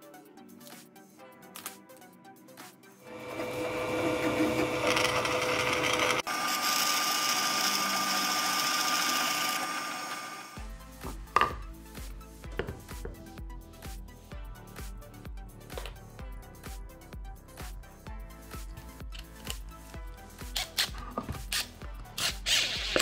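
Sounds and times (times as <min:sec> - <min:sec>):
background music: 0:00.0 - 0:06.3, 0:10.6 - 0:23.0
drill press motor whine: 0:03.1 - 0:10.6
drill bit rasping in wood: 0:03.2 - 0:10.6, 0:20.6 - 0:23.0.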